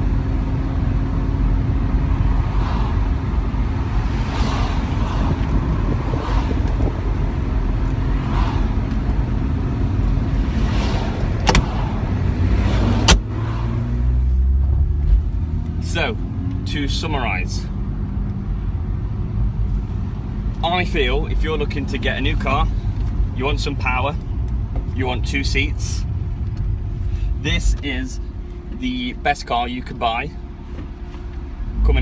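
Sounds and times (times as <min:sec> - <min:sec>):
car engine and road rumble: 0:00.0 - 0:32.0
sharp clicks: 0:11.4 - 0:11.7.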